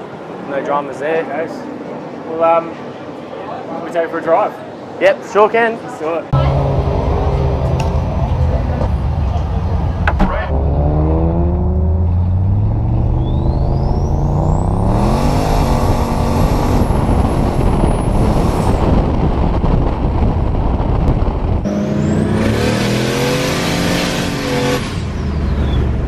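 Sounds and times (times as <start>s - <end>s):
car engine at full throttle: 6.4s - 26.0s.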